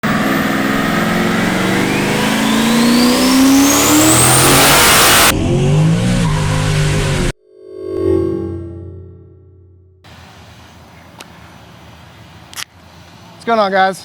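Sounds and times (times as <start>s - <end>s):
engine at full throttle: 0.0s - 7.4s
high turbo whine: 0.0s - 13.4s.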